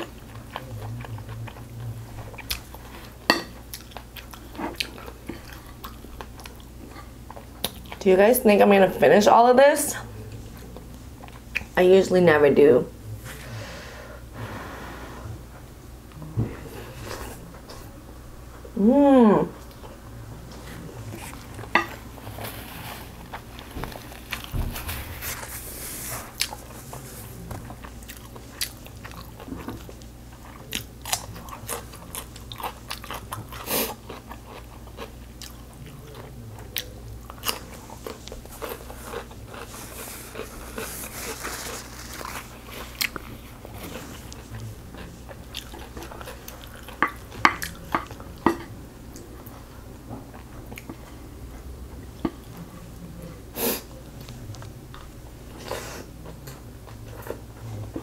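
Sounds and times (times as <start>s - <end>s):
chewing with mouth clicks: 0.0s - 8.0s, 26.4s - 49.7s.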